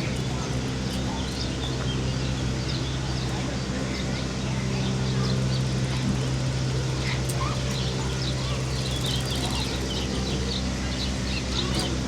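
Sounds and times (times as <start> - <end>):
constant background rush: 0.0 - 12.0
small birds chirping: 7.5 - 12.0.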